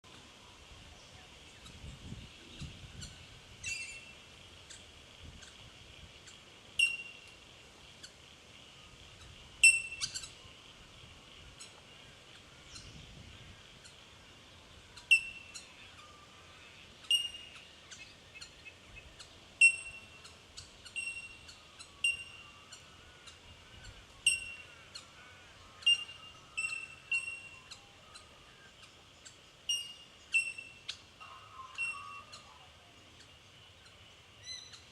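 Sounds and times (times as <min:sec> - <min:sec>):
bell-like bird calls: 0:06.8 - 0:07.3, 0:09.6 - 0:10.3, 0:15.1 - 0:16.3, 0:17.0 - 0:17.6, 0:19.6 - 0:22.8, 0:24.2 - 0:24.8, 0:25.8 - 0:28.4, 0:29.7 - 0:32.8.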